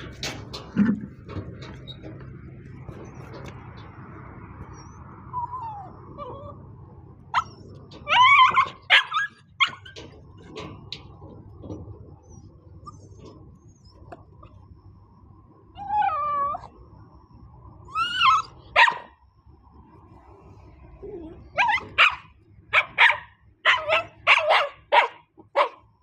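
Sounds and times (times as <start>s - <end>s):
dog whining: 4.7s - 6.6s, 7.3s - 10.0s, 15.8s - 16.8s, 17.9s - 19.0s, 21.0s - 22.3s
dog yelping and barking: 4.7s - 6.7s, 7.3s - 10.1s, 15.8s - 16.8s, 17.9s - 19.2s, 21.0s - 26.0s
dog whimpering: 4.8s - 6.6s, 15.8s - 16.7s, 21.0s - 22.0s.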